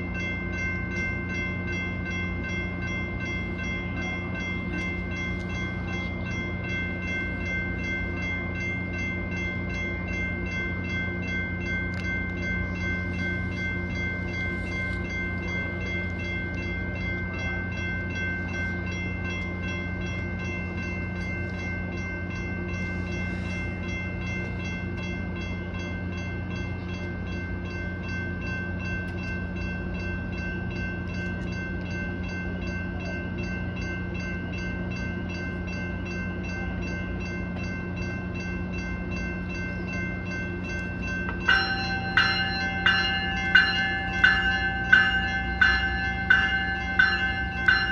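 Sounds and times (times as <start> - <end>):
diesel locomotive rumbling: 0.0 - 47.9
bell ringing rapidly: 39.2 - 47.9.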